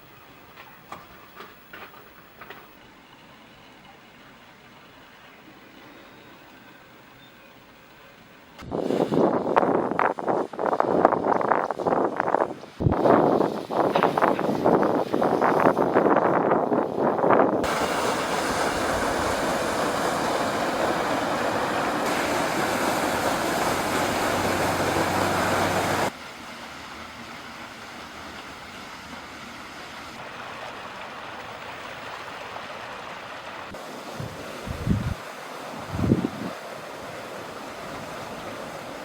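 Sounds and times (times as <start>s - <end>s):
waterfall rushing: 17.6s - 28.8s, 30.1s - 39.0s.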